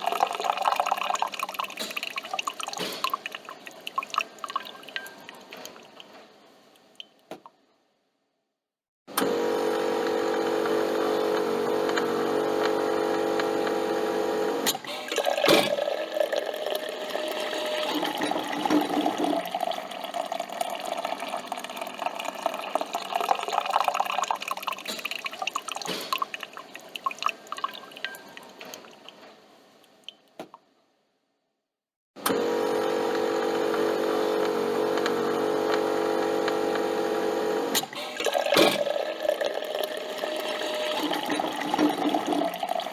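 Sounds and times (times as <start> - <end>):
liquid pouring and dripping: 0.0 - 6.2, 14.7 - 29.3, 37.8 - 42.9
coffee machine humming: 9.2 - 24.8, 32.2 - 42.9.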